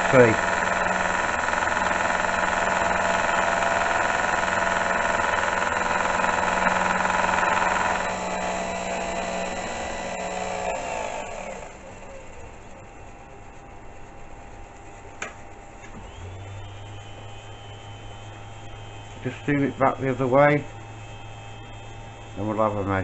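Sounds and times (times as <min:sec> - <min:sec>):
milling machine geared whine: 0:00.0 - 0:23.0.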